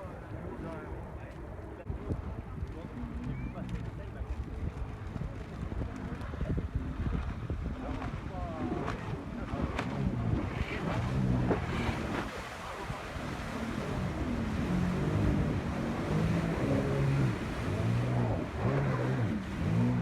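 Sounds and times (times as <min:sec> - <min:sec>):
wind on microphone: 0:00.0 - 0:20.0
jet ski engine revving: 0:02.9 - 0:20.0
water rushing: 0:05.0 - 0:20.0.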